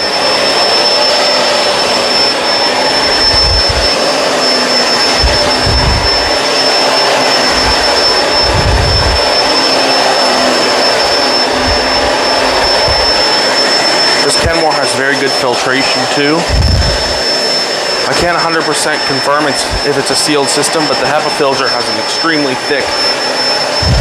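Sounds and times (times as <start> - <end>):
vacuum cleaner running on carpet: 0.0 - 24.0
low rumbles: 3.1 - 3.9, 5.2 - 6.4, 7.4 - 9.4, 11.5 - 13.3, 16.4 - 17.2, 23.8 - 24.0.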